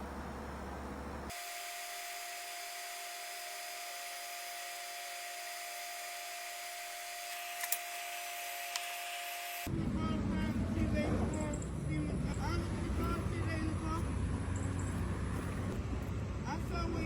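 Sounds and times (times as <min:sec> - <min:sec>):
power tool motor whining: 0:01.3 - 0:09.7.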